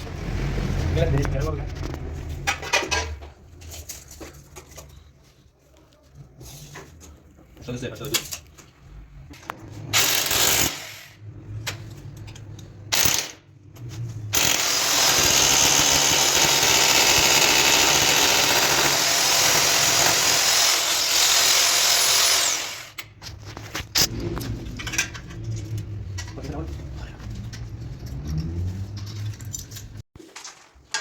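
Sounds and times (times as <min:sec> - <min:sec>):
power drill running: 0:14.4 - 0:23.0.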